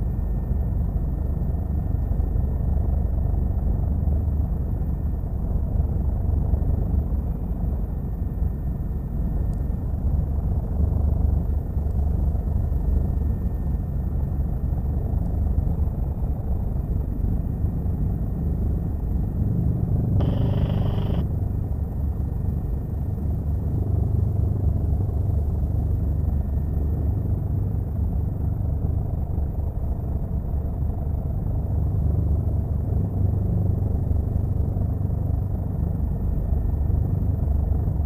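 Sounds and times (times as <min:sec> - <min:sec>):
brief tone: 0:20.2 - 0:21.2
helicopter cabin rumble: 0:20.2 - 0:21.2.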